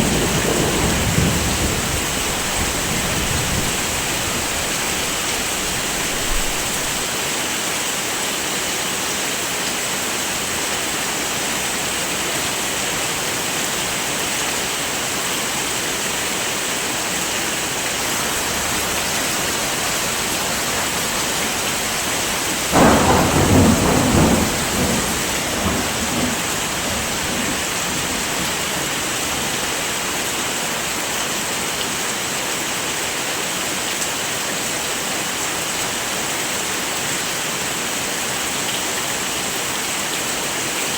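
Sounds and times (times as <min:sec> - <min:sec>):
roll of thunder: 0:00.0 - 0:07.0, 0:20.6 - 0:29.0
heavy rain falling: 0:00.0 - 0:40.9.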